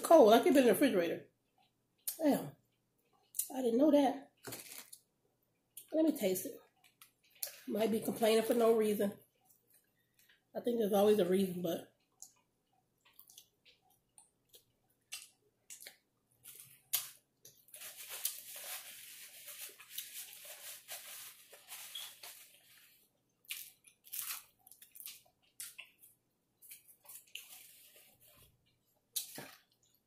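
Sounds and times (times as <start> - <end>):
person chewing wetly: 1.4 - 3.5, 12.0 - 17.7, 23.1 - 30.0.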